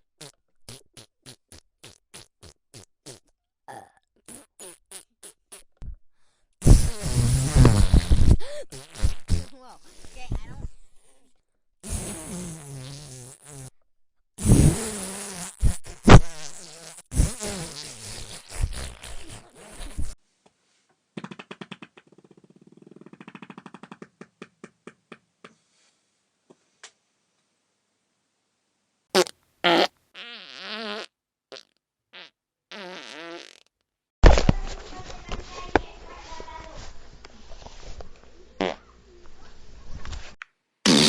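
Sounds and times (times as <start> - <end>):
fart sound effects: 6.6 - 9.6, 11.8 - 13.7, 14.4 - 20.2, 21.2 - 23.9, 29.2 - 34.4, 38.6 - 38.8.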